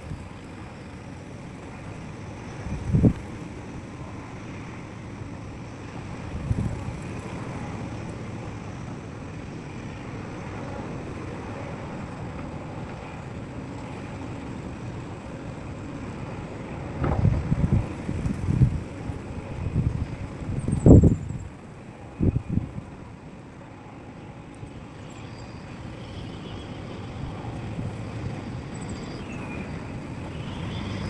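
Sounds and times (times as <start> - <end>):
wind buffeting microphone: 0.0 - 8.7, 14.0 - 23.7.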